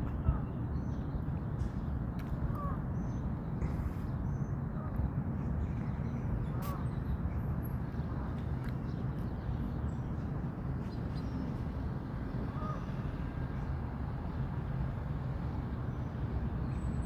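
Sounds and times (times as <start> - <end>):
low outdoor rumble: 0.0 - 17.0
faint bird call: 12.5 - 13.2.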